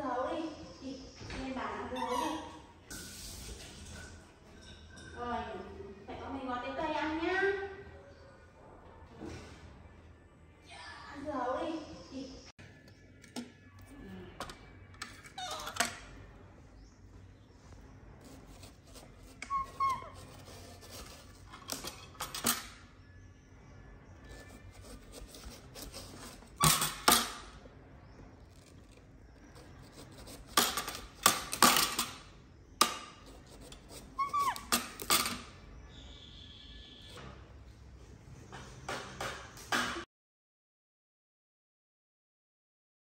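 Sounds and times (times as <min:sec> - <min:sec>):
knife cutting watermelon rind: 0:18.2 - 0:22.0, 0:24.2 - 0:27.4, 0:28.4 - 0:31.6, 0:32.9 - 0:35.1.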